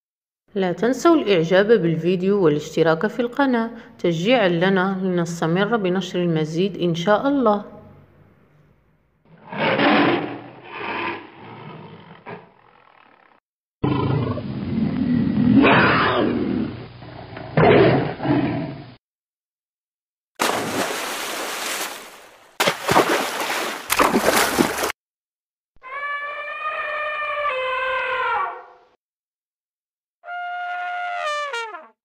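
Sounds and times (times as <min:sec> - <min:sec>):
tiger roaring and growling: 0:09.3 - 0:19.0
elephant wading through water: 0:20.4 - 0:24.9.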